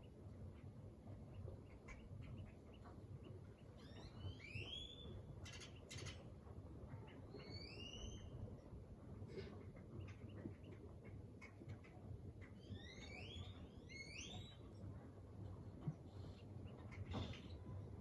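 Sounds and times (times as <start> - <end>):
bird whistled calls: 7.5 - 8.3.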